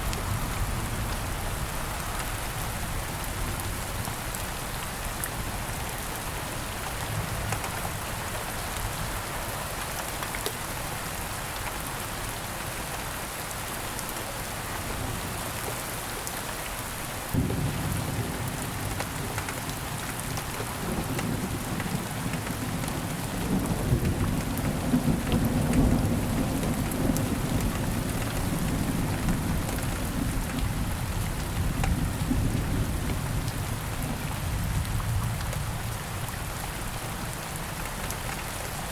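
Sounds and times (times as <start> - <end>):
steady rain falling: 0.0 - 38.9
thunder rumbling: 17.4 - 19.8.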